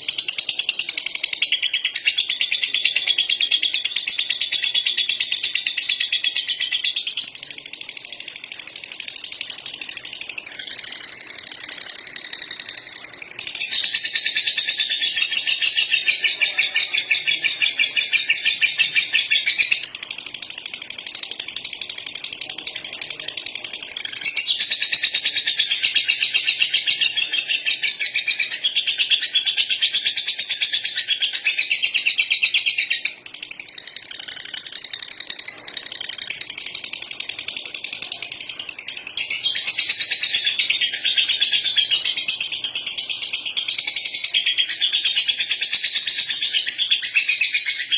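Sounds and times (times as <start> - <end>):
bird chattering song: 0.0 - 47.9.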